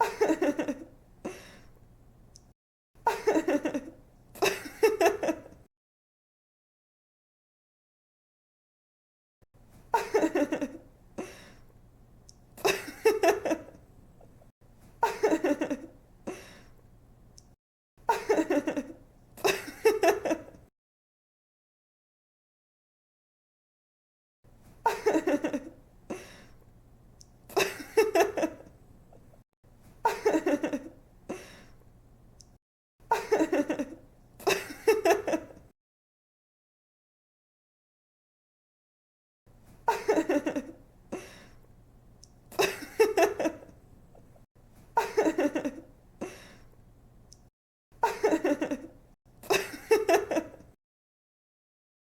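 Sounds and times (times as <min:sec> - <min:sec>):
young woman giggling laughter: 0:00.0 - 0:00.9, 0:03.1 - 0:05.6, 0:09.9 - 0:10.9, 0:12.6 - 0:13.8, 0:15.0 - 0:16.4, 0:18.1 - 0:20.6, 0:24.9 - 0:25.8, 0:27.5 - 0:28.7, 0:30.0 - 0:31.0, 0:33.1 - 0:35.6, 0:39.9 - 0:40.8, 0:42.6 - 0:43.7, 0:45.0 - 0:45.9, 0:48.0 - 0:50.7.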